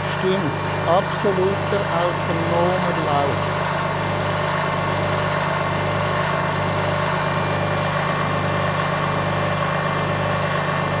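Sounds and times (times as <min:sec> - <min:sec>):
electric motor humming: 0:00.0 - 0:04.1.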